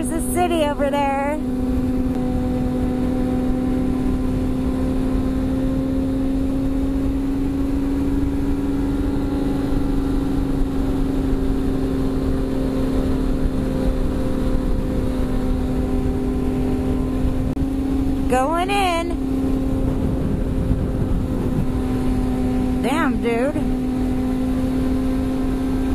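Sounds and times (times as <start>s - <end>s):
motorcycle engine cruising: 0.0s - 25.9s
wind rushing over microphone: 0.0s - 25.9s.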